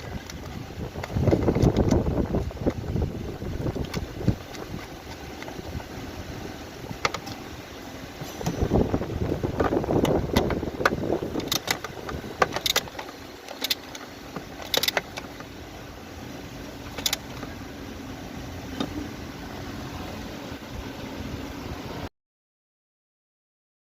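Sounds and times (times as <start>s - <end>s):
sharp clicks and knocks: 0.0s - 2.9s, 3.6s - 5.6s, 7.0s - 7.4s, 9.5s - 15.5s, 16.9s - 17.6s
car engine idling: 0.0s - 22.1s.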